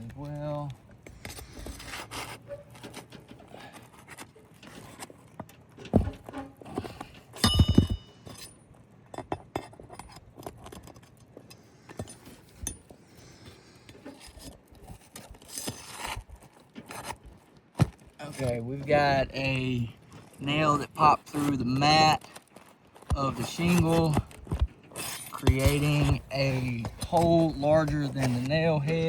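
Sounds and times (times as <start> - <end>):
pry bar scraping nails: 1.0 - 8.6, 9.2 - 16.2, 23.0 - 29.0
metal clank ringing: 7.4 - 8.5.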